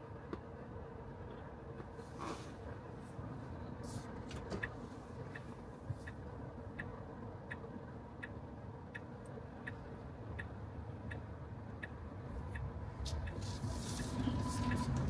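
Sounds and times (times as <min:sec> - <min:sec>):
car rolling hum: 0:00.2 - 0:15.0
turn signal ticking: 0:04.0 - 0:15.0
tyre and road noise: 0:11.8 - 0:15.0.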